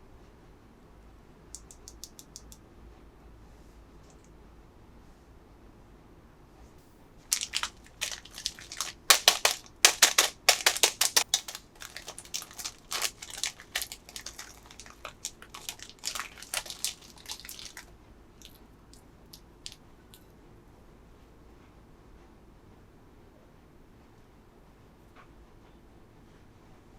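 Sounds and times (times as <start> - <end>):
plastic packaging crinkling: 7.3 - 18.6.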